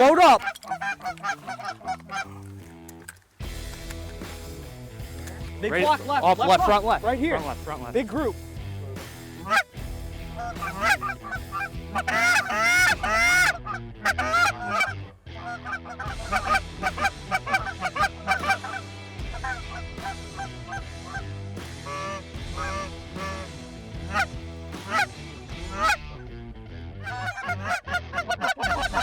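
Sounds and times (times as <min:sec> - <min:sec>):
geese honking: 0:00.0 - 0:02.6, 0:09.4 - 0:09.7, 0:10.3 - 0:26.0, 0:27.0 - 0:29.0.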